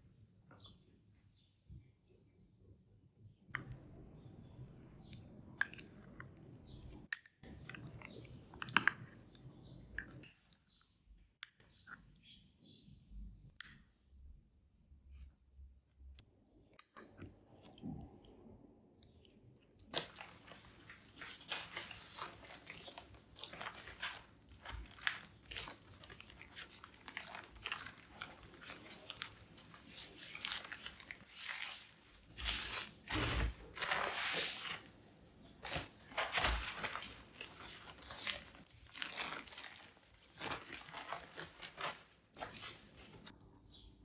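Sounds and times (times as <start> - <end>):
crinkling and tearing while handled: 19.9 - 35.0, 35.6 - 43.4.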